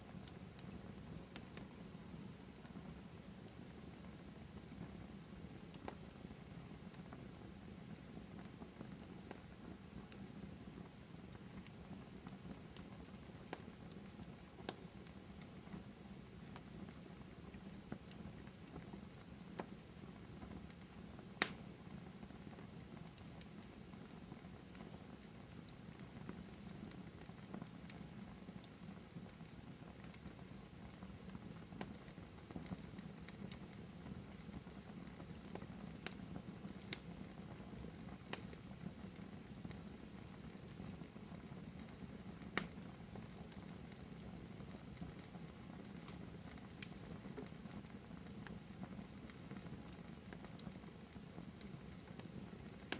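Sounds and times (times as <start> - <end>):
low rumble of burning: 0.0 - 52.9
wood fire crackling: 0.0 - 52.9
sharp pops of fire: 21.3 - 21.7, 42.5 - 42.8.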